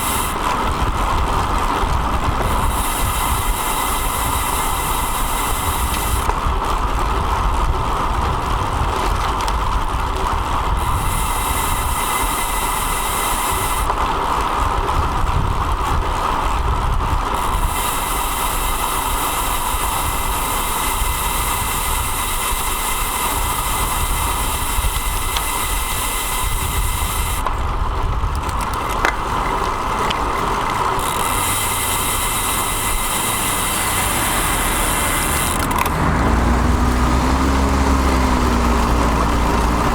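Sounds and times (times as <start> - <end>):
wind on microphone: 0.0 - 39.9
hiss: 2.5 - 6.3, 10.8 - 13.9, 17.4 - 27.4, 31.3 - 35.6.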